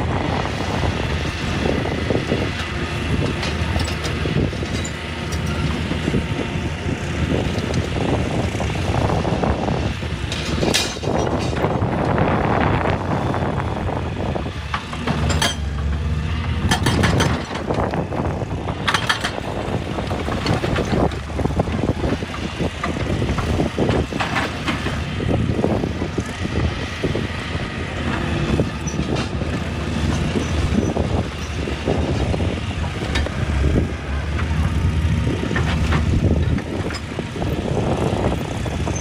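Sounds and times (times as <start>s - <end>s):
excavator diesel engine running: 0.0s - 39.0s
metal clanks and scrapes: 10.3s - 11.7s, 14.9s - 15.9s, 16.6s - 17.8s.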